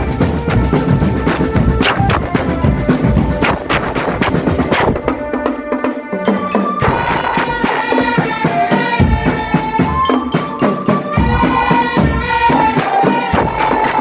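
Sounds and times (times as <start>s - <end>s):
bass drums: 0.0s - 5.4s, 6.8s - 8.2s
held stepwise melody: 0.0s - 14.0s
snare and tenor drums: 0.0s - 14.0s.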